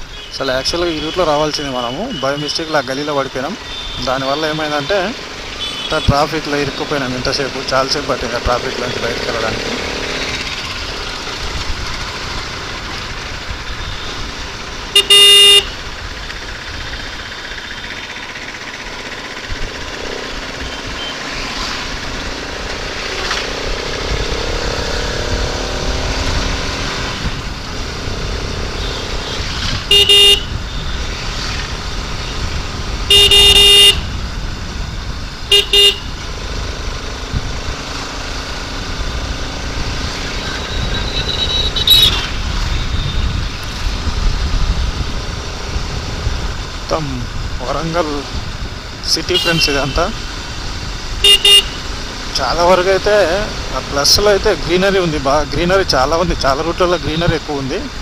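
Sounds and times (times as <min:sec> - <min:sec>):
motorcycle road and wind noise: 0:00.0 - 0:58.0
vehicle horn honks: 0:05.6 - 0:06.2, 0:14.9 - 0:15.8, 0:28.8 - 0:30.9, 0:33.1 - 0:34.1, 0:35.5 - 0:36.1, 0:40.7 - 0:42.2, 0:49.3 - 0:50.0, 0:51.2 - 0:51.9.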